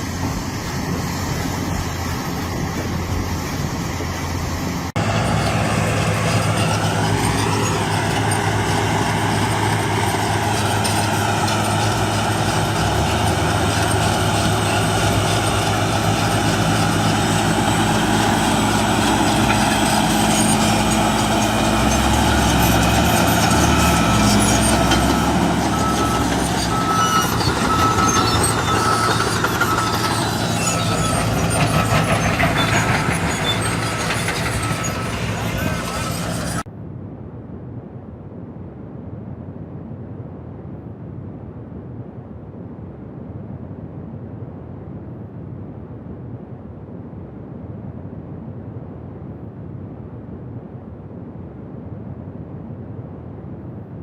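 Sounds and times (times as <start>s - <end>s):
heavy diesel engine running: 0.0s - 36.7s.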